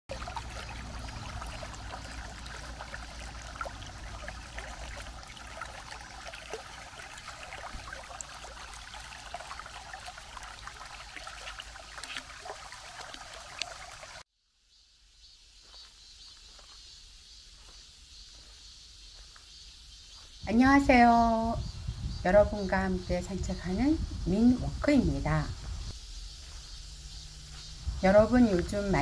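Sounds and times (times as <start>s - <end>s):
creek water running: 0.0s - 14.2s, 22.3s - 29.0s
small water splashes: 0.1s - 14.2s.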